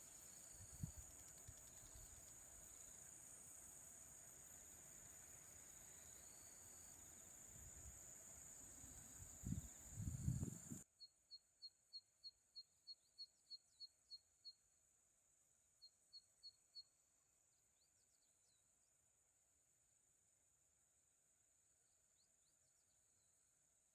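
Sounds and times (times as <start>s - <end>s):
steady high hiss: 0.0s - 10.8s.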